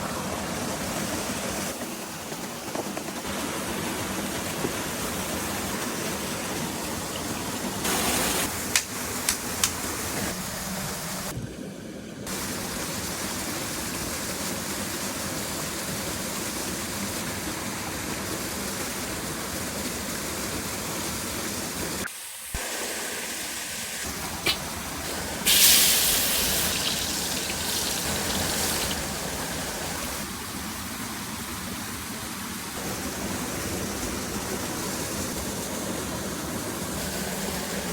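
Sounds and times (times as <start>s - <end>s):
loud hiss: 22.1s - 30.2s.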